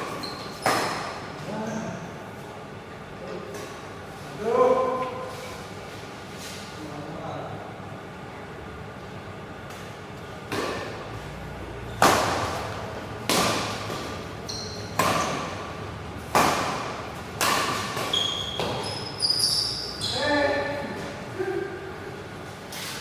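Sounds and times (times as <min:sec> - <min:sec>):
shoe squeaks on court: 0:00.0 - 0:01.1, 0:14.4 - 0:15.4, 0:18.0 - 0:20.6
rackets striking shuttlecock: 0:12.0 - 0:19.1.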